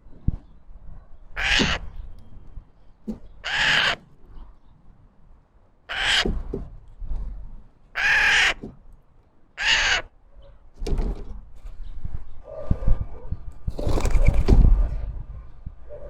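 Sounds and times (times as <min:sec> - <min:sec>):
crow cawing: 0:01.4 - 0:01.8, 0:03.4 - 0:04.0, 0:05.9 - 0:06.3, 0:08.0 - 0:08.6, 0:09.6 - 0:10.1.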